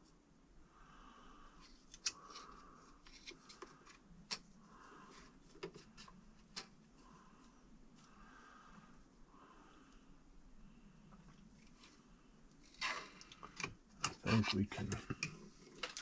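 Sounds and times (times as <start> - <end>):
plastic parts clicking and tapping: 14.9 - 16.0.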